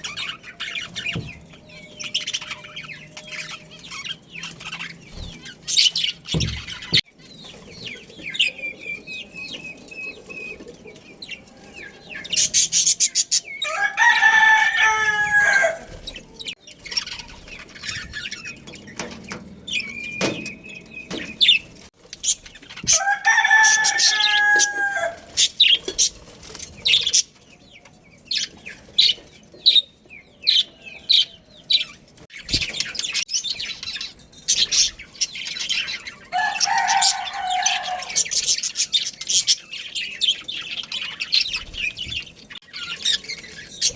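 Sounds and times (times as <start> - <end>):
small birds chirping: 0.0 - 43.9
rooster crowing: 13.6 - 16.1, 22.9 - 25.3, 36.3 - 38.3.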